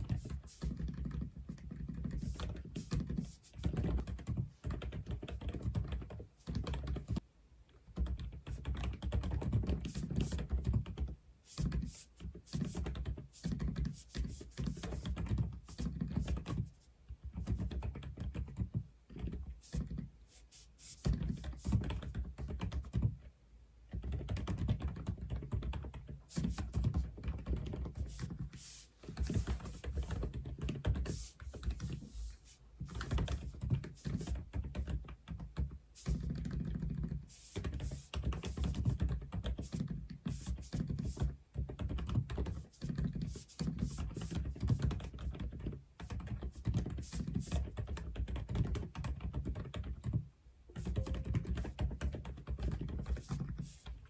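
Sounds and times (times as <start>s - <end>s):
mechanical keyboard typing: 0.0s - 7.2s, 8.0s - 11.9s, 12.5s - 16.7s, 17.3s - 20.0s, 21.1s - 23.2s, 23.9s - 28.5s, 29.2s - 32.0s, 32.9s - 53.9s.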